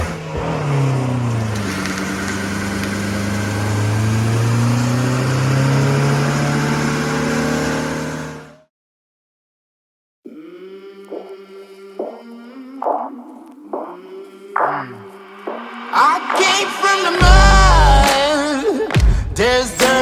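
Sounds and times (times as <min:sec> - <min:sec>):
vehicle engine running under load: 0:00.0 - 0:08.6.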